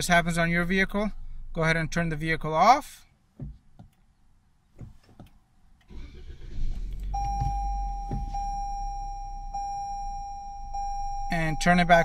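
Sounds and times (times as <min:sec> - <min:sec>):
car engine cranking and idling: 0:04.8 - 0:12.0
electronic warning tone: 0:07.1 - 0:12.0.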